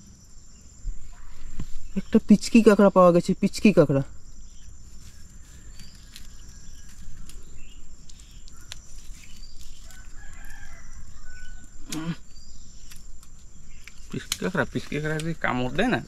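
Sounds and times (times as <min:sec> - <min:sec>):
faint bird calls: 0:04.1 - 0:14.2.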